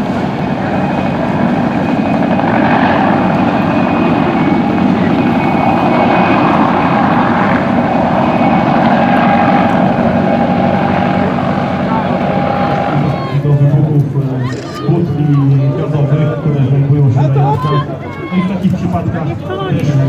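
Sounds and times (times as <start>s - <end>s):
helicopter in flight: 0.0s - 20.0s.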